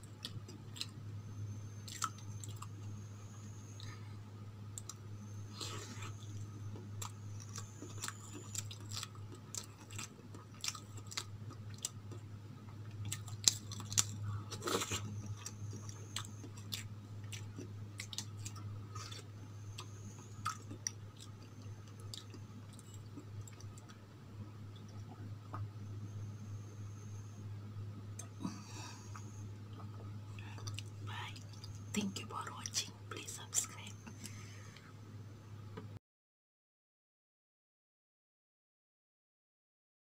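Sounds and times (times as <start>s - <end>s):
close-up chewing sounds: 0.0s - 4.0s, 4.7s - 24.0s, 28.2s - 34.8s
low hum: 0.0s - 36.0s.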